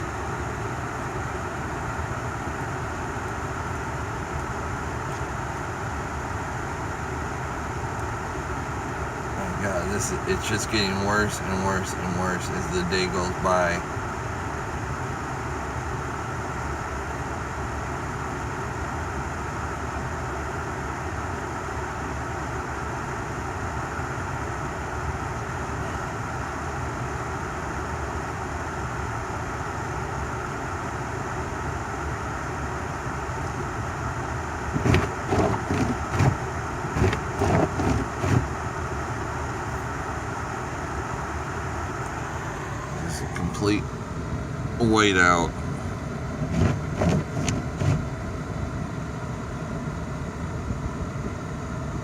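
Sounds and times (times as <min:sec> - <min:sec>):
car hum from inside cabin: 0:00.0 - 0:52.0
irregular thumps: 0:34.7 - 0:38.5, 0:46.4 - 0:48.0.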